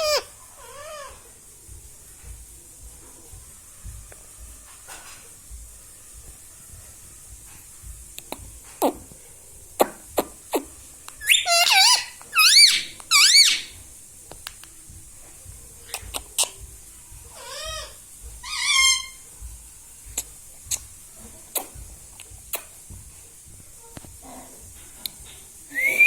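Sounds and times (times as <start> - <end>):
parrot shrill warbling calls: 0.0 - 1.2, 11.2 - 13.7, 17.4 - 19.2.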